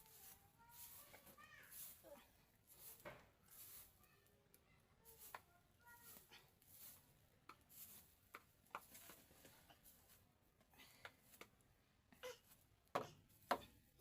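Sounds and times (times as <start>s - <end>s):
soft rustles: 0.0s - 4.2s, 5.0s - 10.4s.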